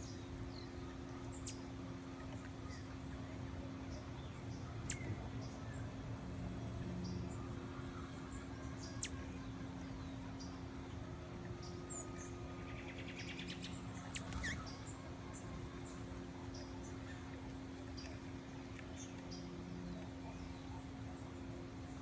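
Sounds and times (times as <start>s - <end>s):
small birds calling: 0.0s - 3.2s, 3.8s - 5.8s, 7.0s - 10.9s, 11.5s - 21.4s
steady low hum: 0.0s - 22.0s
bird twittering: 4.8s - 5.1s, 9.0s - 9.2s, 12.8s - 14.8s.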